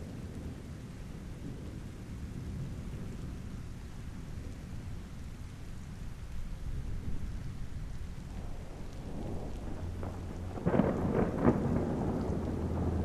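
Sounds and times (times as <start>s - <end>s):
steady rain: 0.0s - 13.0s
thunder rumbling: 6.6s - 13.0s.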